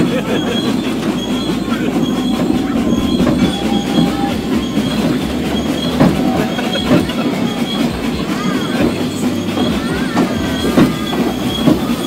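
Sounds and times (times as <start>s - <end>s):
train wheels clattering on rail: 0.0s - 12.0s.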